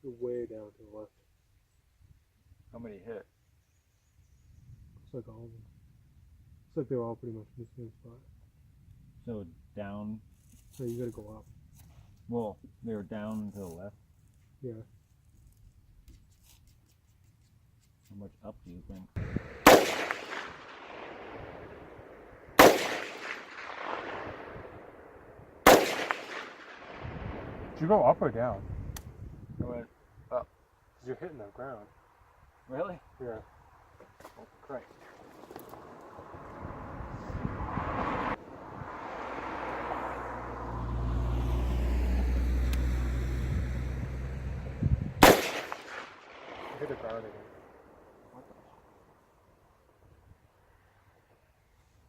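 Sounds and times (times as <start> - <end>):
rifle shots echoing: 19.4 - 27.8, 45.2 - 48.0
engine drone passing by: 35.9 - 45.2.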